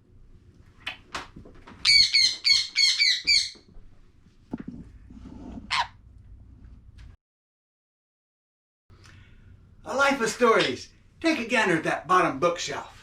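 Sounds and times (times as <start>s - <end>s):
parrot squawking: 1.8s - 3.6s, 5.7s - 6.0s.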